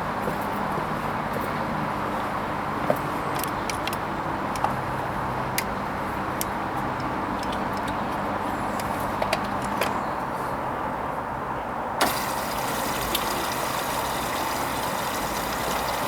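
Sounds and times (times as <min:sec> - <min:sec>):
washing machine hum and whoosh: 0:12.0 - 0:16.0.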